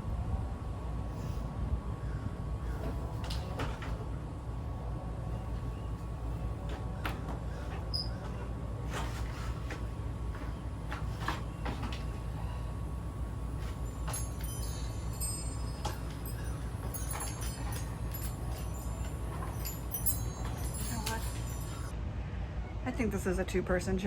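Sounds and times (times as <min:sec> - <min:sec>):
steady low hum: 0:00.0 - 0:24.0
knocks and metallic clinks: 0:13.6 - 0:21.9.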